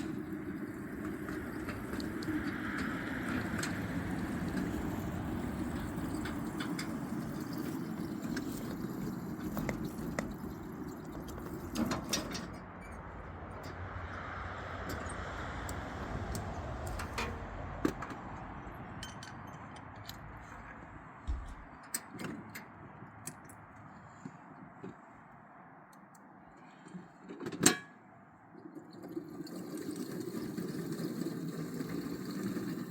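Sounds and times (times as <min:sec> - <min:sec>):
miniature train rumbling on track: 0:00.0 - 0:20.2, 0:28.7 - 0:32.9
wheels and couplers clanking: 0:00.0 - 0:25.0, 0:26.6 - 0:32.9.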